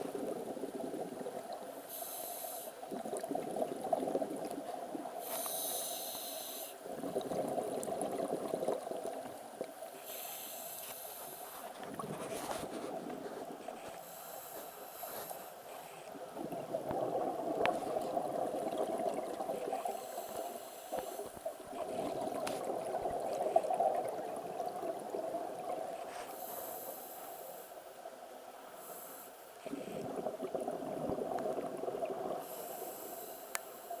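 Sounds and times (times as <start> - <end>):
bubbling water: 0.0 - 1.8, 2.8 - 5.2, 6.8 - 10.0, 16.2 - 26.0, 29.6 - 32.6
swimmer breathing underwater: 5.2 - 7.3
faint ticks: 10.5 - 12.0, 32.8 - 34.0.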